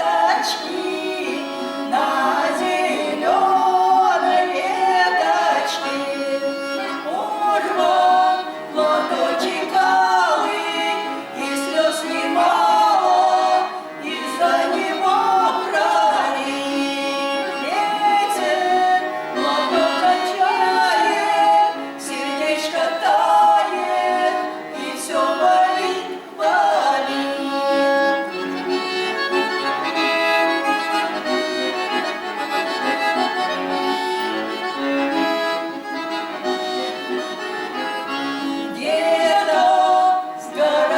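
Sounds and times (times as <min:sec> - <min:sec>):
people singing: 0:00.0 - 0:28.1, 0:38.4 - 0:40.9
accordion melody: 0:00.0 - 0:40.9.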